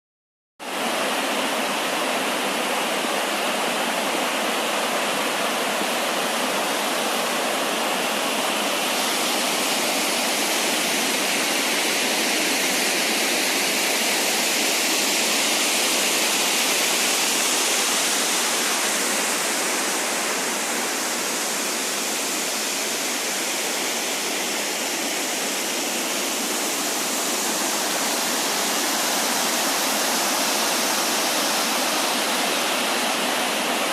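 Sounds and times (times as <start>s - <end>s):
waterfall rushing: 0.6s - 33.9s.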